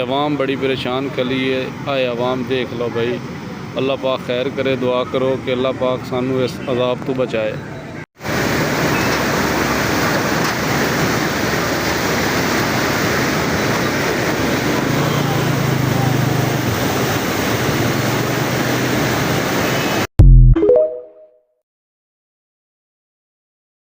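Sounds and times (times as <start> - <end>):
floodwater rushing: 8.2 - 20.1.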